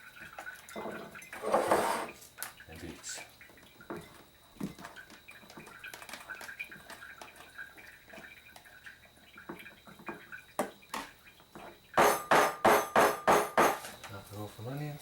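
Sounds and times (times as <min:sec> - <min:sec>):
sharp knocks on glass jars: 0:12.0 - 0:13.9.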